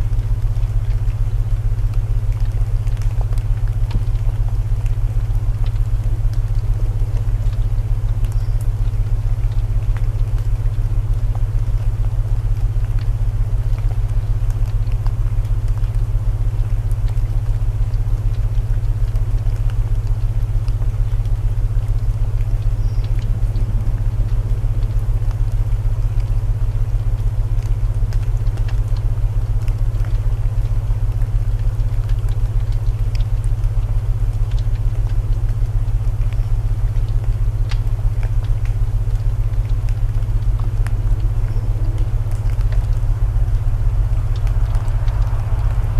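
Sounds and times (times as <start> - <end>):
burning wood crackles: 0.0 - 45.9
rain hiss: 0.0 - 45.9
low binaural tones humming: 20.3 - 28.4.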